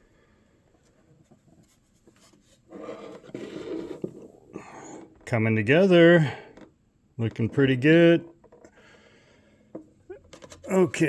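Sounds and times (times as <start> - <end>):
cardboard and plastic rubbing: 0.8 - 5.2.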